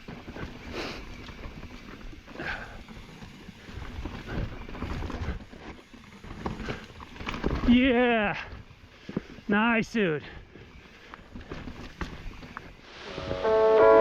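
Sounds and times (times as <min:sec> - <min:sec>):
bike rattling over rock: 0:00.0 - 0:08.8, 0:10.7 - 0:12.8.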